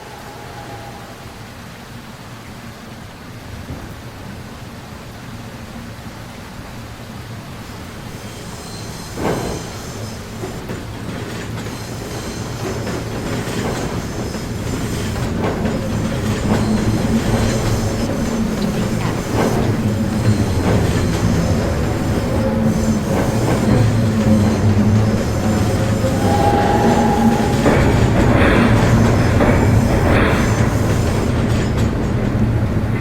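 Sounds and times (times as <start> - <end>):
subway train motor hum: 8.0 - 33.0
wheels clicking over rail joints: 8.5 - 33.0.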